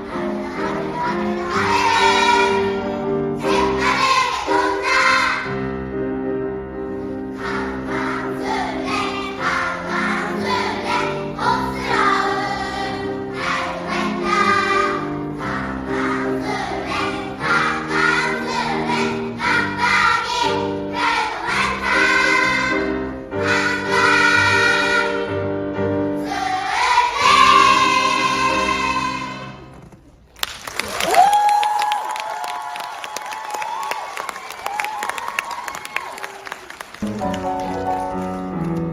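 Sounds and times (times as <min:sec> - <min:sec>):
choir singing: 0:00.0 - 0:05.6, 0:07.3 - 0:25.4, 0:26.2 - 0:29.6.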